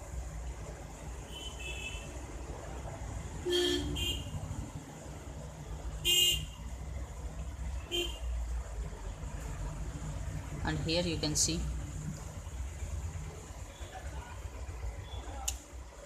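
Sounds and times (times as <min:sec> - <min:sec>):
vehicle horns honking: 0:01.3 - 0:02.1, 0:03.4 - 0:04.4, 0:06.0 - 0:06.6, 0:07.8 - 0:08.2.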